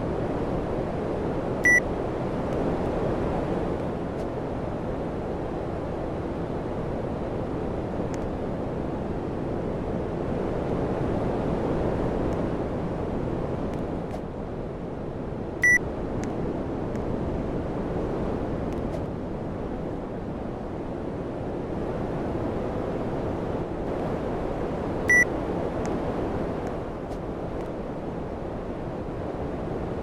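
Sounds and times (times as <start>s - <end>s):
short electronic beeps: 1.6s - 1.8s.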